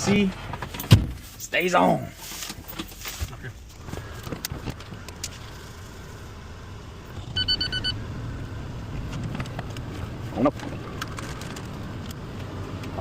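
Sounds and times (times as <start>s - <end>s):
truck engine and road rumble: 0.0s - 13.0s
high electronic beeps: 7.2s - 8.0s.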